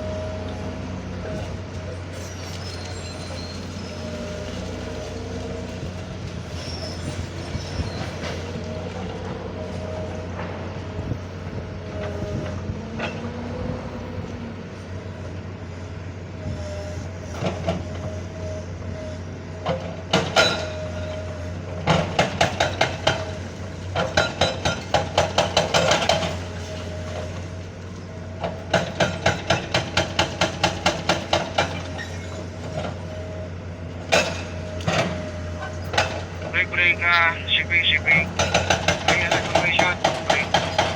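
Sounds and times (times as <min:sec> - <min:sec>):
backhoe engine whining: 0:34.6 - 0:40.9.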